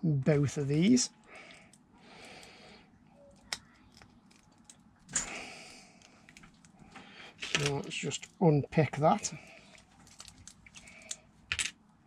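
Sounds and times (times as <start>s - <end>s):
plastic pieces rustling: 9.6s - 11.7s.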